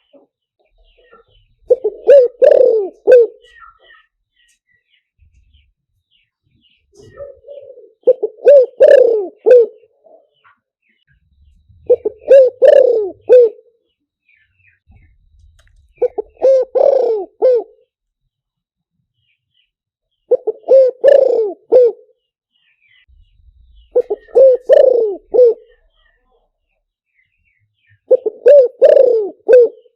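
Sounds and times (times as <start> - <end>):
dove cooing: 0.8 - 4.1, 6.9 - 10.5, 11.7 - 13.8, 14.9 - 17.9, 20.3 - 22.2, 23.6 - 26.2, 28.0 - 29.9.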